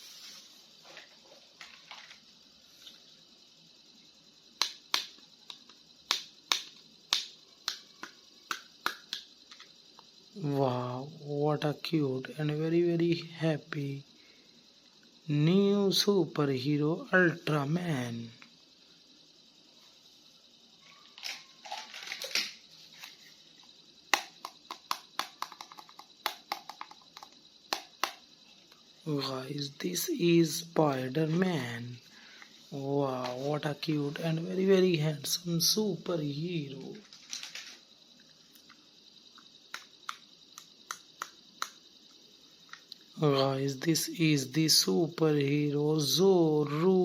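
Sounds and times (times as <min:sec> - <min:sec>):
plastic toy clicks and taps: 0:04.6 - 0:09.7, 0:24.1 - 0:28.2, 0:39.7 - 0:41.8
plastic clicks and taps: 0:24.2 - 0:28.2.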